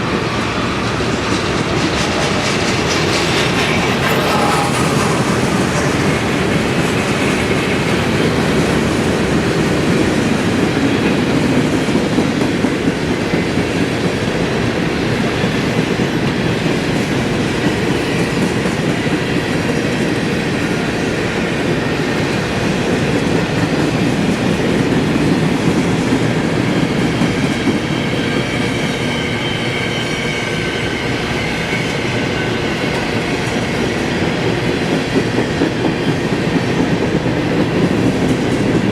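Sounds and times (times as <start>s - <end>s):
clickety-clack over rail joints: 0.0s - 29.2s, 31.7s - 38.9s
train wheels rumbling on rails: 0.0s - 38.9s.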